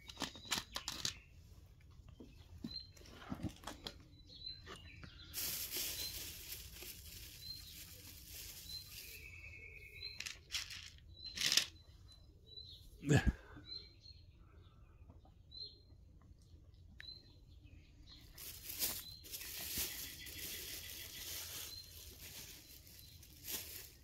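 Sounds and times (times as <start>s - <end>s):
rustling and handling noises: 0.0s - 11.8s, 18.2s - 24.0s
small bird chirping: 0.0s - 24.0s.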